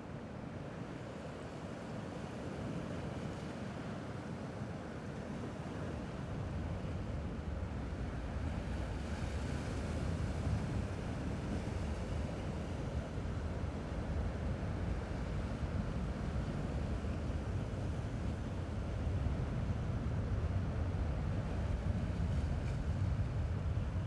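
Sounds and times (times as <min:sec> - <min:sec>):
wind rumble on microphone: 0:06.0 - 0:24.0.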